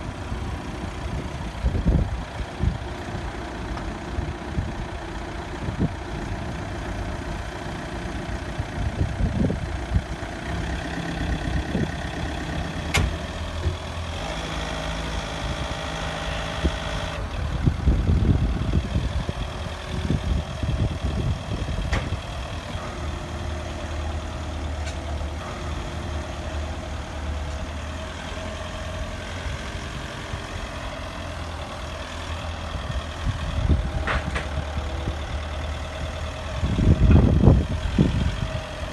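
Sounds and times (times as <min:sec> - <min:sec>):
truck engine idling: 0:00.0 - 0:38.9.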